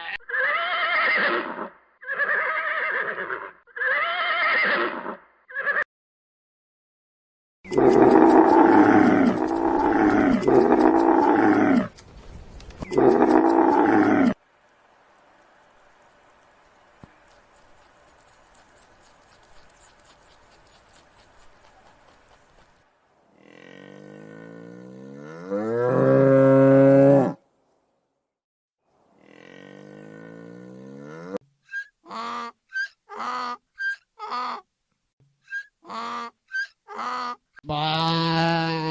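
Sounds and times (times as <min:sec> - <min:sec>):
cattle mooing: 0:23.4 - 0:27.4.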